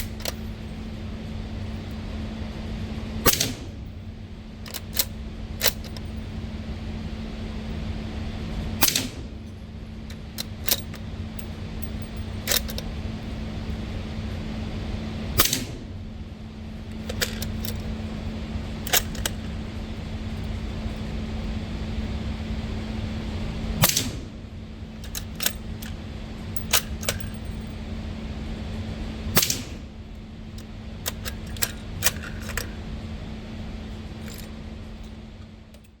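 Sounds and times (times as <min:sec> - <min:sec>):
steady low hum: 0:00.0 - 0:36.0
muffled suppressed gunshots: 0:03.3 - 0:03.8, 0:23.8 - 0:24.4.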